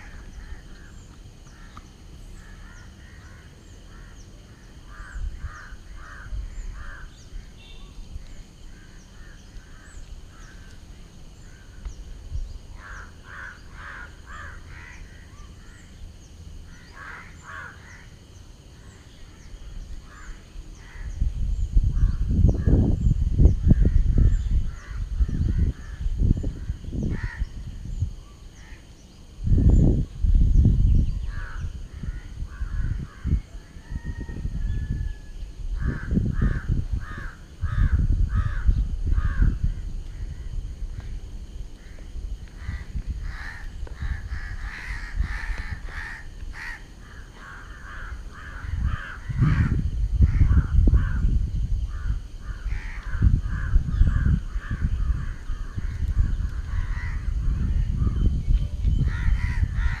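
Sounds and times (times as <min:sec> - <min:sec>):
crows cawing: 0:02.4 - 0:07.5, 0:12.8 - 0:15.8, 0:16.7 - 0:18.1, 0:27.1 - 0:27.5, 0:35.8 - 0:39.6, 0:41.8 - 0:51.2, 0:51.9 - 0:57.4, 0:59.1 - 1:00.0.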